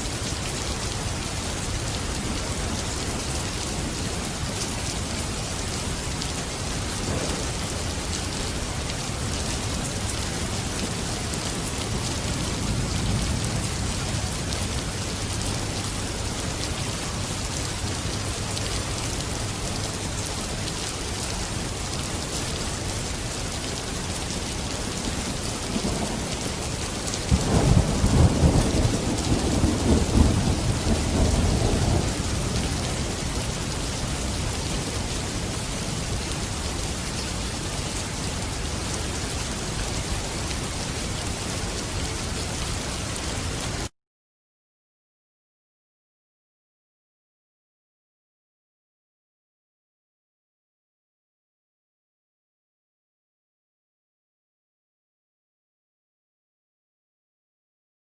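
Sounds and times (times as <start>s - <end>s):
heavy rain: 0.0s - 43.9s
thunder rumbling: 6.5s - 18.5s, 24.9s - 36.1s.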